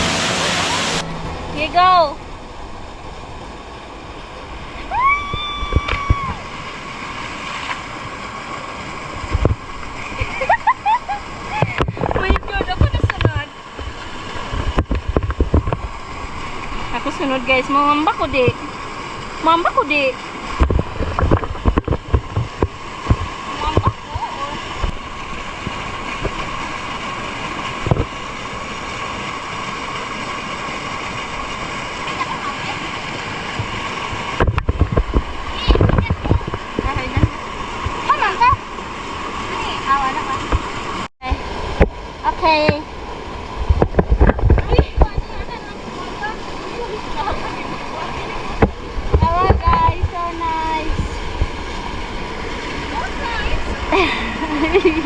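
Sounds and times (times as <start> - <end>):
low thumps: 0.0 - 4.4
waterfall rushing: 0.0 - 10.4, 15.5 - 43.7, 45.2 - 55.0.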